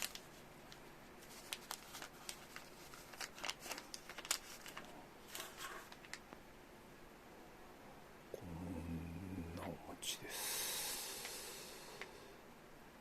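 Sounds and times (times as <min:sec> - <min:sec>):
plastic wrapper crinkling: 0:00.0 - 0:06.3.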